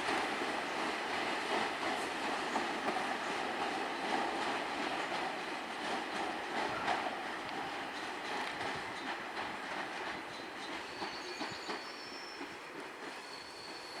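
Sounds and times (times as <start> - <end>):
train wheels clicking over rail joints: 0.0 - 14.0
faint high wheel squeal: 10.4 - 14.0.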